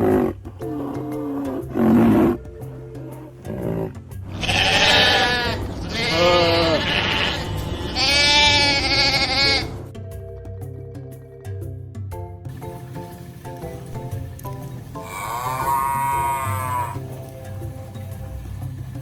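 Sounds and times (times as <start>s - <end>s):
background music: 0.0s - 19.0s
sheep bleating: 4.3s - 9.8s, 15.0s - 17.0s.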